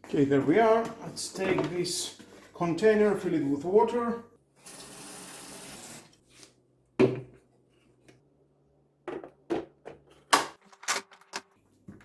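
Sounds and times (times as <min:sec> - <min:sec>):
water running from a tap: 0:04.6 - 0:06.2.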